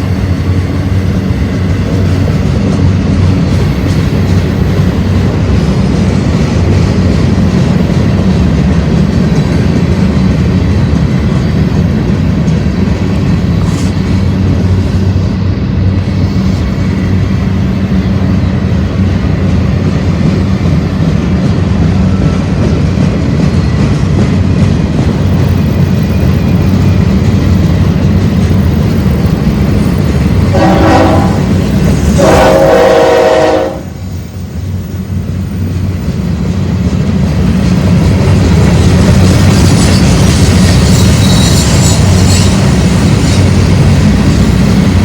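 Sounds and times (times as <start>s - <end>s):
freight train rumbling: 0.0s - 45.0s
locomotive air horn blasts: 30.5s - 34.1s.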